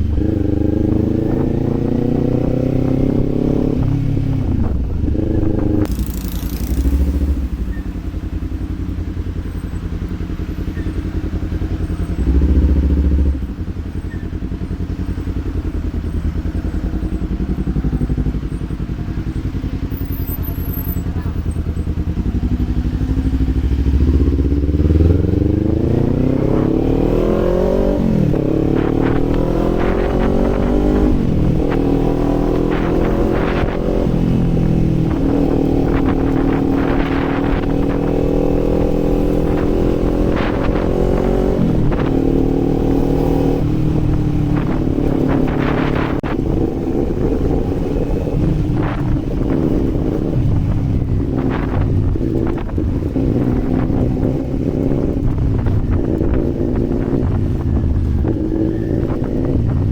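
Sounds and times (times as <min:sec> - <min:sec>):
motorcycle engine revving through shifts: 0:00.0 - 0:59.9.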